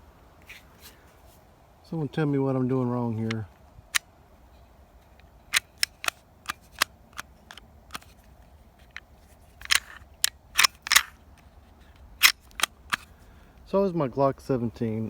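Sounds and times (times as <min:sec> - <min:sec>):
pistol parts clicking: 0:05.0 - 0:13.2.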